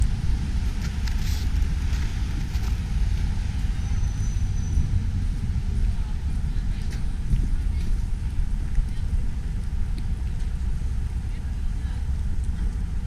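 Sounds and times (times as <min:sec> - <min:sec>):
wind buffeting microphone: 0:00.0 - 0:13.0
faint footsteps in snow: 0:00.7 - 0:03.3.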